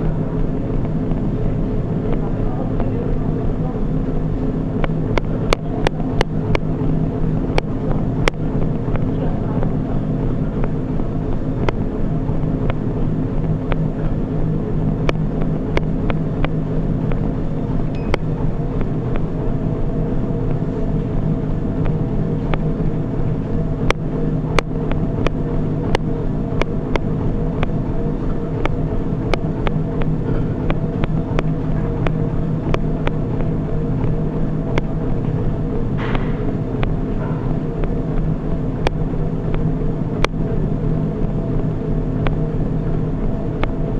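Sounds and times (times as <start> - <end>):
treadmill motor and belt hum: 0.0 - 43.9.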